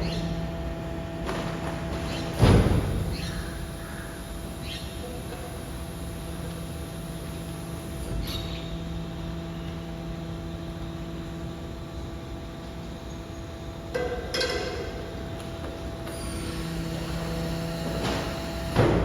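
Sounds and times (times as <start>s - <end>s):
garbage truck compactor humming: 0.0s - 19.0s.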